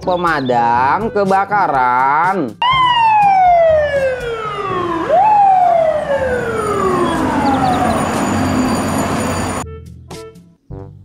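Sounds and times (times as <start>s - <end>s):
fire truck siren wailing: 2.6s - 9.6s.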